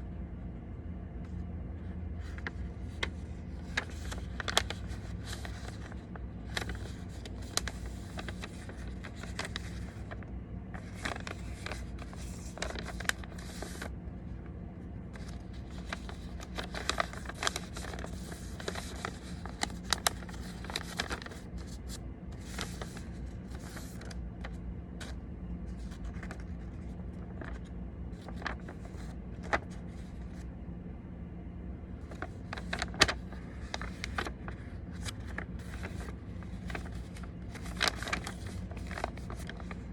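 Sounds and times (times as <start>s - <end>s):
steady low hum: 0.0s - 39.9s
paper being folded and creased: 1.8s - 30.5s, 31.9s - 39.9s.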